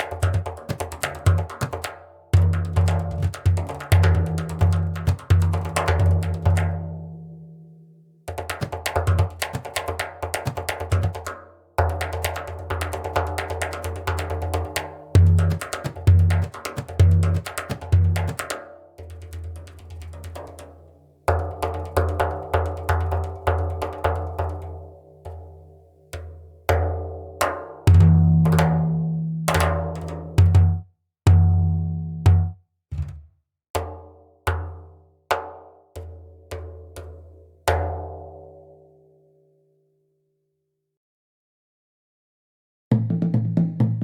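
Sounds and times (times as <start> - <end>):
hand drum playing: 0.0 - 7.2, 8.3 - 25.5, 26.1 - 33.2.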